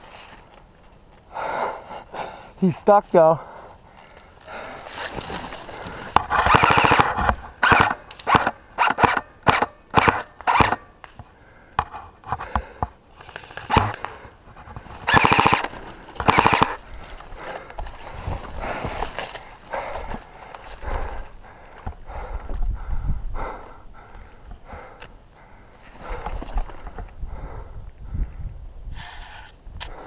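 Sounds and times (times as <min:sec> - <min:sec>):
airsoft rifle firing bursts: 0:06.3 - 0:10.8, 0:15.0 - 0:16.8.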